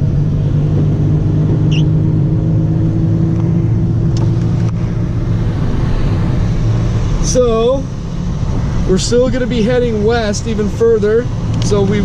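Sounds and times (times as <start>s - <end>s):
car engine and road noise: 0.0s - 12.0s
high chirp: 1.7s - 2.0s.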